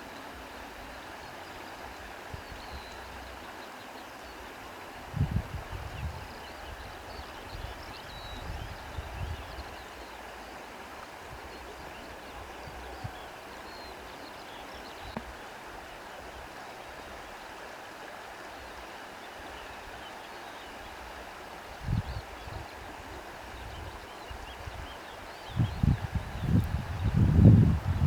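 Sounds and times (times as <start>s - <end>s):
rushing water: 0.0s - 28.0s
low rumbling wind gusts: 5.0s - 7.8s, 25.5s - 28.0s
reeds rustling in wind: 21.7s - 28.0s.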